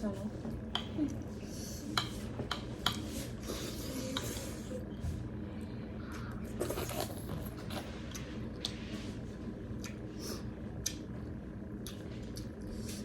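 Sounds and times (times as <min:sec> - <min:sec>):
low steady hum: 0:00.0 - 0:13.0
soft wet food sounds: 0:05.6 - 0:13.0.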